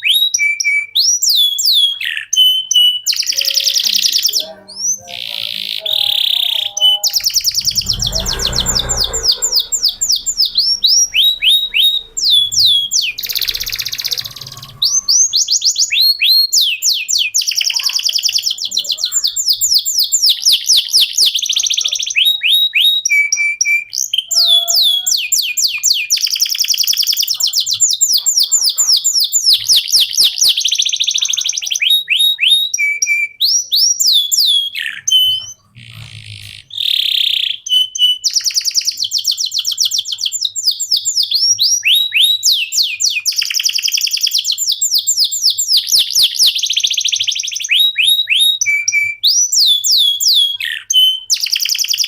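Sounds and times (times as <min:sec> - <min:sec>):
canary singing trills: 0:00.0 - 0:52.0
low rumble: 0:07.2 - 0:15.3.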